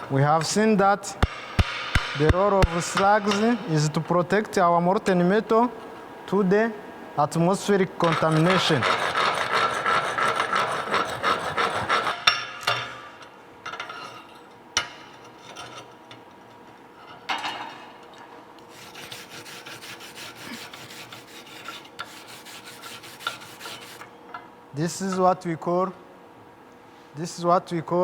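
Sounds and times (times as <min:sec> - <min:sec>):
sharp knocks: 0:01.2 - 0:03.9.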